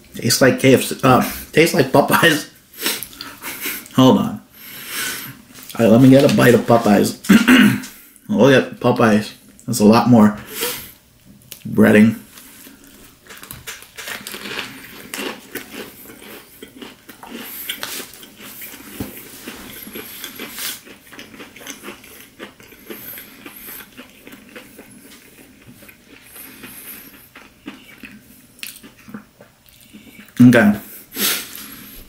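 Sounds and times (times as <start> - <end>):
crunchy chewing: 12.4 - 30.4
biting into fried chicken sandwich: 13.2 - 29.1.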